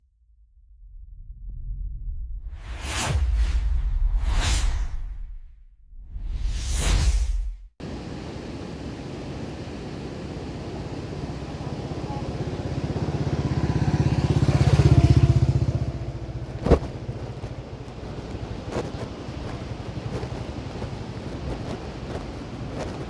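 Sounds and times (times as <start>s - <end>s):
motorcycle engine revving: 12.2s - 23.0s.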